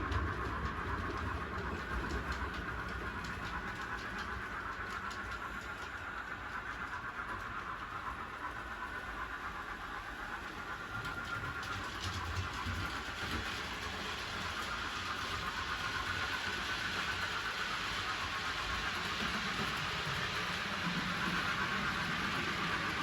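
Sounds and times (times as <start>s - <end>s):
wheels ticking over rails: 0.0s - 23.0s
model train motor whine: 1.6s - 23.0s.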